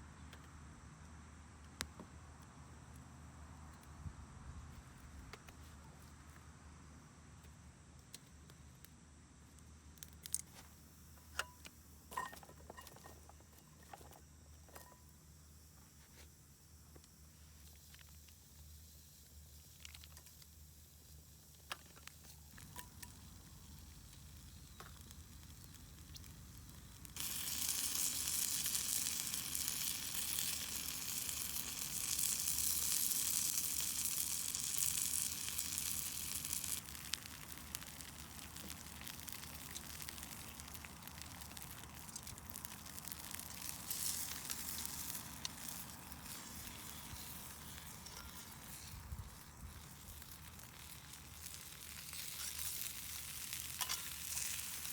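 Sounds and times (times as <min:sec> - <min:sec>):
food sizzling in a skillet: 0:17.4 - 0:54.9
oil popping: 0:21.6 - 0:54.9.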